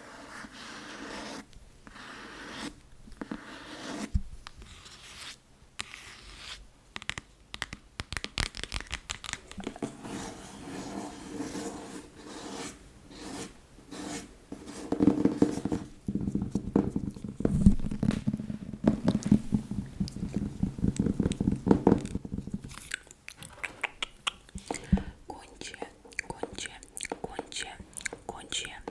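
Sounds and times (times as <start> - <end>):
tapping and scratching on book: 0.1 - 22.9.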